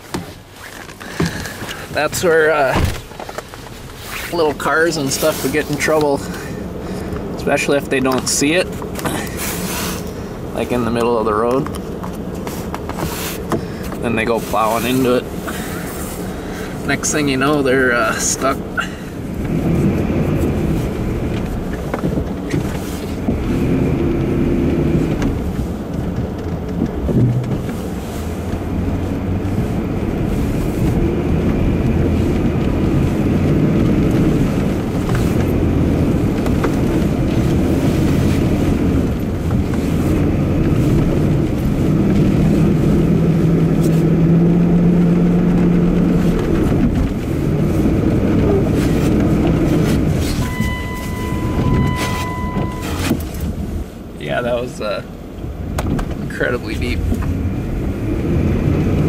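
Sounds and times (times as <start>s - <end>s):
truck engine under load: 0.0s - 54.1s.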